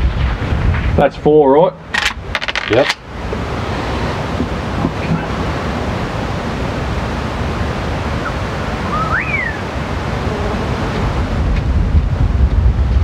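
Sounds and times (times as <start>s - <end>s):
wind on microphone: 0.0s - 13.0s
bird whistle: 8.2s - 9.6s.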